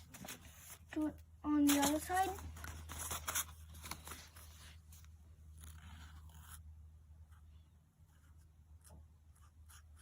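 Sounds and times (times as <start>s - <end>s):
marker scratching on paper: 5.6s - 10.0s.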